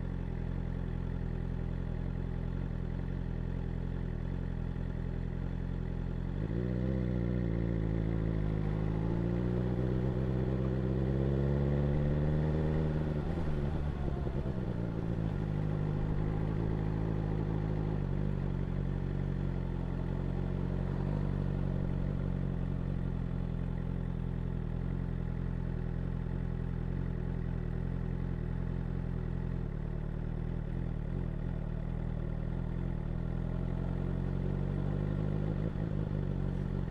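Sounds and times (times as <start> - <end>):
motorcycle engine revving: 6.2 - 27.0.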